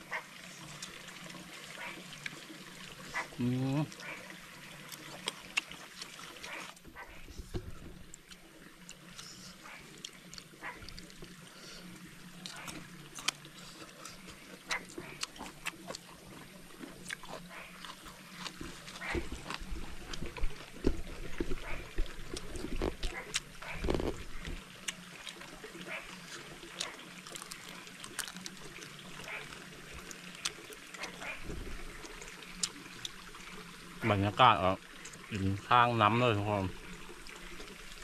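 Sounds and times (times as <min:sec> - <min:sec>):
faint trickle of water: 0:00.0 - 0:38.0
chewing and lip-smacking: 0:03.0 - 0:06.8, 0:08.1 - 0:11.4, 0:12.4 - 0:33.2.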